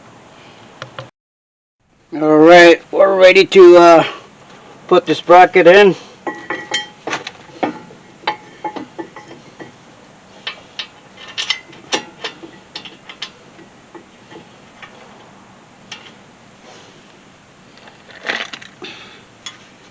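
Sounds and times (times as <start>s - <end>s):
hand tools ringing strikes: 6.3s - 7.0s.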